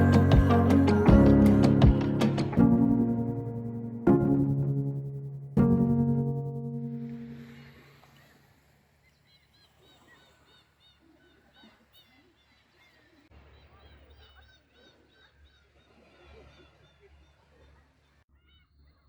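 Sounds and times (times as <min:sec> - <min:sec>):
birds chirping: 0:07.4 - 0:19.0.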